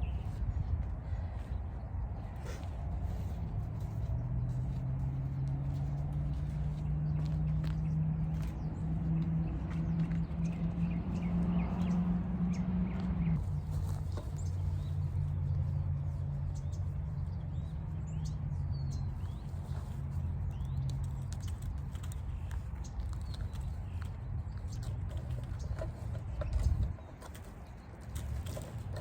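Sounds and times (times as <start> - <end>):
small birds chirping: 0.0 - 29.0
light clicks and rustles: 13.0 - 29.0.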